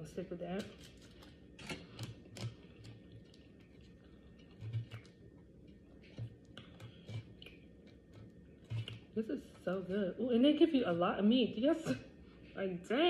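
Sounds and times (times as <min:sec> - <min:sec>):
chewing: 0:00.7 - 0:09.6.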